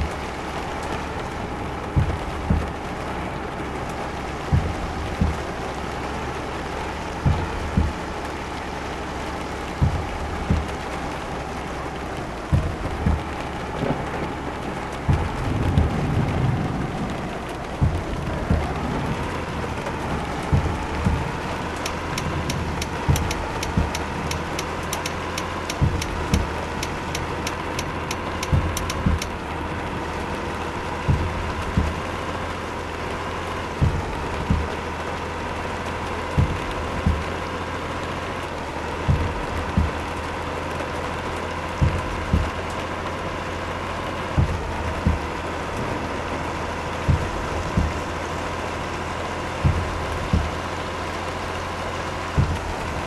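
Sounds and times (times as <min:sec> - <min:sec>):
low thumps: 0:00.0 - 0:32.5, 0:33.2 - 0:43.0, 0:43.9 - 0:53.0
truck engine running: 0:00.0 - 0:53.0
sharp ticks: 0:20.5 - 0:29.4.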